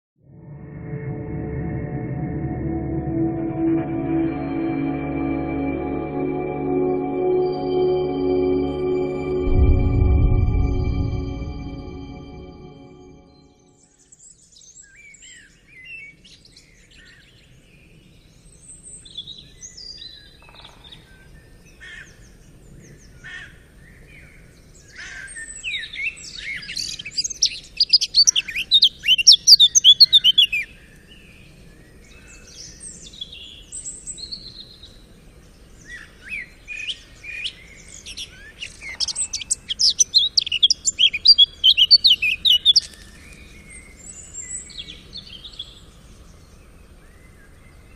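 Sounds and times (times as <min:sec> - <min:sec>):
songbirds singing: 0:27.5 - 0:47.9.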